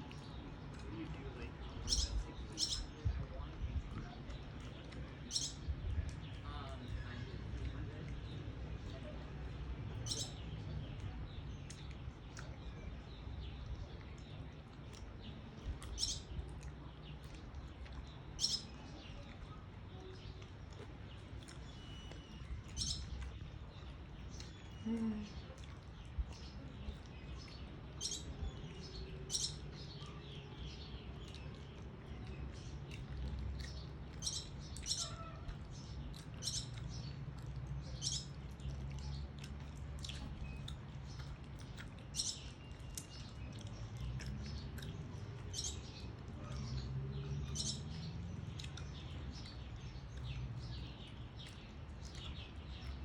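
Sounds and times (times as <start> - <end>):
steady low rumble: 0.0 - 21.6
birds chirping: 0.0 - 53.0.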